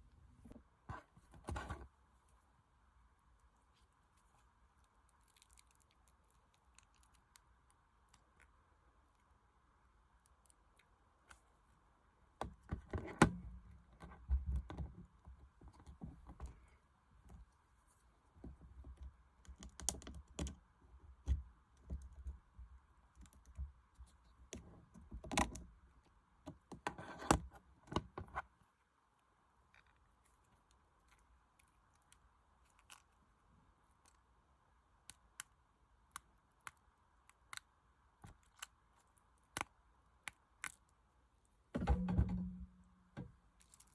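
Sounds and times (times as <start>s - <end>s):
clicking and rustling handling noise: 12.4s - 20.6s, 21.2s - 34.3s, 35.1s - 43.9s.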